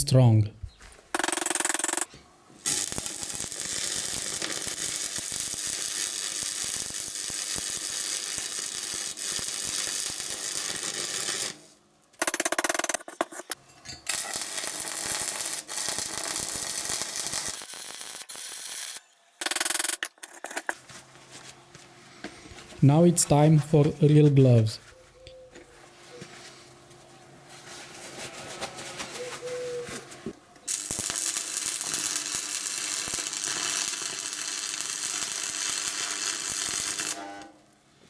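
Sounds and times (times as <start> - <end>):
welding arc crackling: 1.2 - 11.6, 12.2 - 20.8, 30.7 - 37.2.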